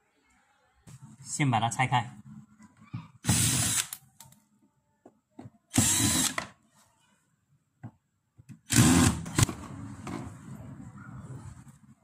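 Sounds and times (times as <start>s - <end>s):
electric drill-driver whirring: 3.2s - 4.0s, 5.7s - 6.5s, 8.7s - 9.5s.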